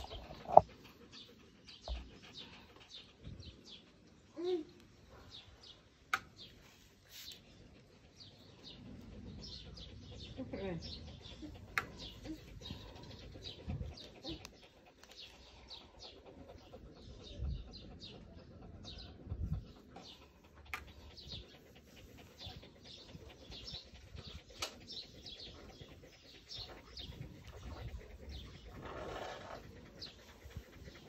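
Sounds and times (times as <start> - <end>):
low bumps: 0.0 - 0.8
small birds chirping: 0.0 - 31.0.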